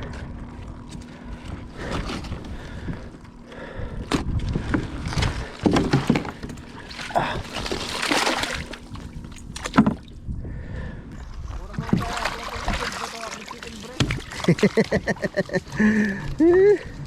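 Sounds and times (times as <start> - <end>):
water splashing at kayak: 5.8 - 10.1, 11.7 - 15.7.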